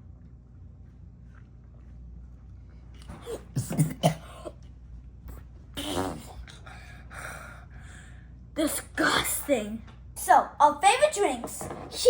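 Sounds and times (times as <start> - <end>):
boy's disgusted vocal bursts: 5.8 - 6.4.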